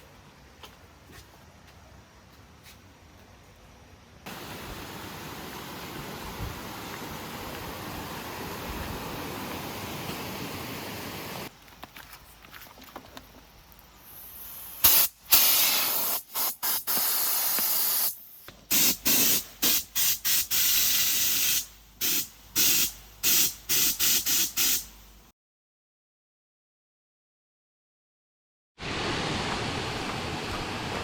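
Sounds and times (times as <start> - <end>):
pressurised hiss bursts: 14.0 - 25.1.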